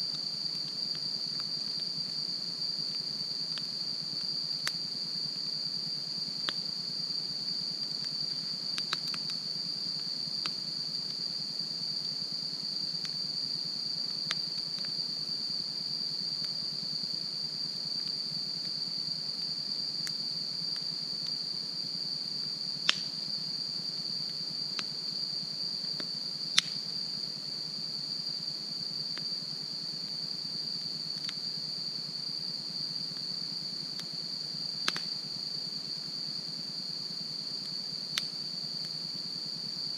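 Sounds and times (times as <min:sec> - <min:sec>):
high-pitched insect chorus: 0:00.0 - 0:39.9
campfire crackling and popping: 0:08.0 - 0:09.4, 0:26.0 - 0:26.8.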